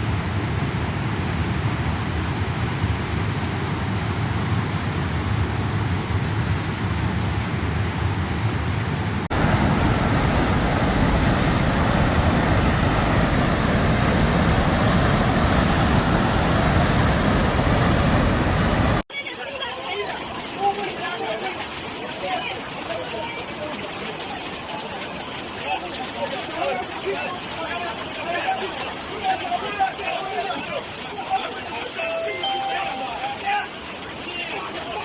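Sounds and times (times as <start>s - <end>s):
rushing water roar: 0.0s - 35.0s.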